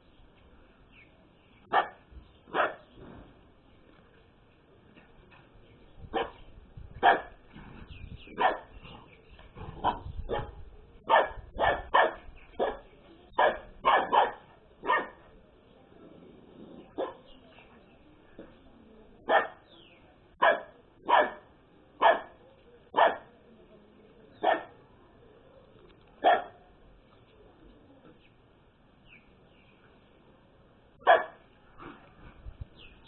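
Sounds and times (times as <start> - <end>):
dog barking: 1.7 - 2.9, 6.1 - 6.4, 7.0 - 7.4, 8.4 - 8.7, 9.8 - 15.2, 16.9 - 17.3, 19.3 - 19.6, 20.4 - 23.3, 24.4 - 24.8, 26.2 - 26.6, 31.0 - 31.4.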